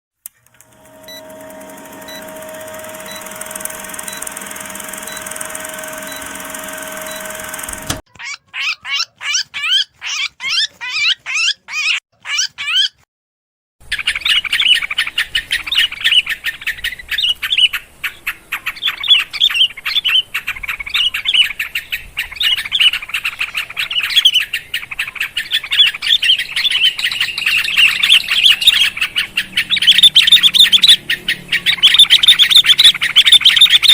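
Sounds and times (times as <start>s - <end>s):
faint regular ticks: 0.3s - 8.0s
steady hum: 0.5s - 8.0s
dense chatter of bird calls: 13.9s - 33.9s.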